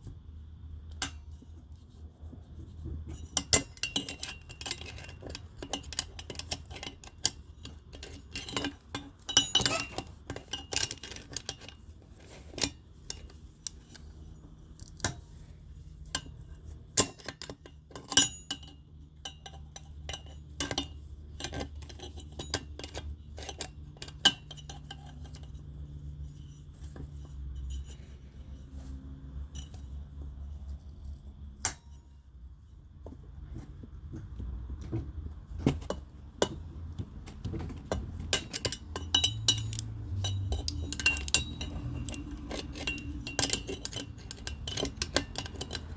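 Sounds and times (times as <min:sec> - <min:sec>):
metal tools clinking on metal: 0:03.0 - 0:15.0, 0:16.0 - 0:32.3, 0:35.9 - 0:45.9.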